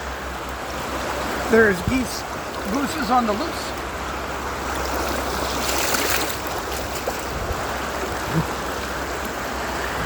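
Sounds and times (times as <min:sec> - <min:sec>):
river water rushing: 0:00.0 - 0:10.0
water splash: 0:04.4 - 0:10.0.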